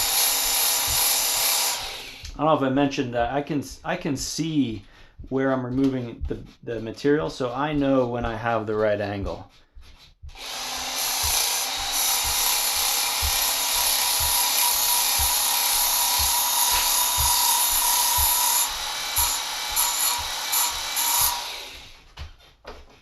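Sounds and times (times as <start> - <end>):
blade grinding on abrasive belt: 0.0 - 2.4, 10.4 - 22.0
motor hum: 10.2 - 22.0.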